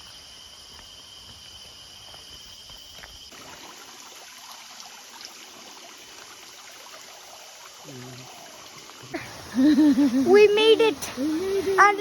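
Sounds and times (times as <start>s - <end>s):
insects droning: 0.0s - 12.0s
stream water flowing: 3.3s - 12.0s.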